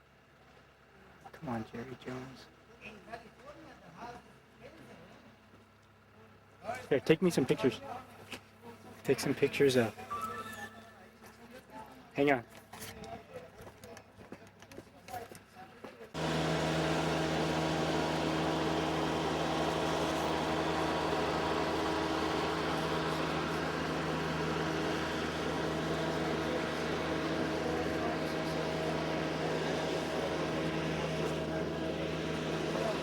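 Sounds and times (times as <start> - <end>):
mechanical drone with low hum: 16.2 - 33.0.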